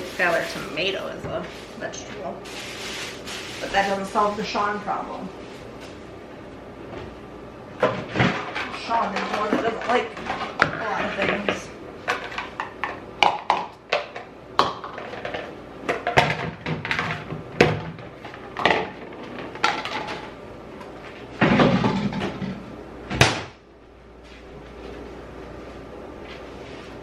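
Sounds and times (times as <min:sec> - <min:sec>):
rustling and scraping: 0:00.0 - 0:04.7, 0:24.2 - 0:27.0.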